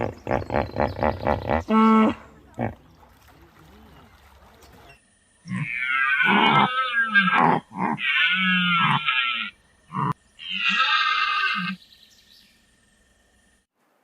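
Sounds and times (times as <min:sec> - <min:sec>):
animal cries: 0:05.5 - 0:11.8.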